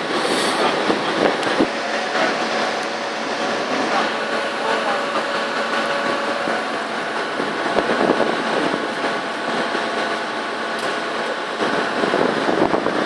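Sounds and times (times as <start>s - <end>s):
dump truck engine running: 0.0s - 13.0s.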